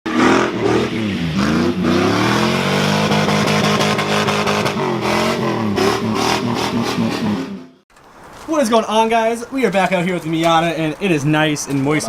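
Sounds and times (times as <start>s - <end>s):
car engine revving hard: 0.1s - 7.8s.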